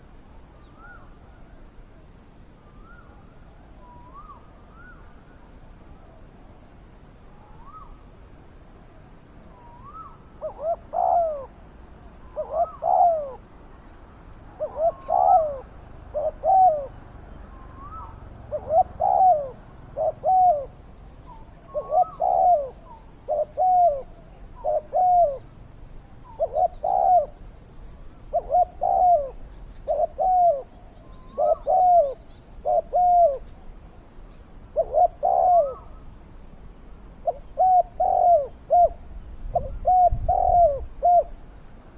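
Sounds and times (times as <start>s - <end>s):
dove cooing: 9.5s - 13.5s, 14.5s - 33.7s, 34.7s - 36.1s, 37.2s - 41.4s.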